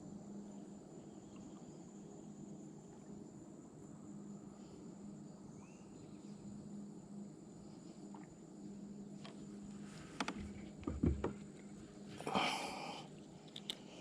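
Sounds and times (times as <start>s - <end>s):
high-pitched insect trill: 0.0s - 9.8s.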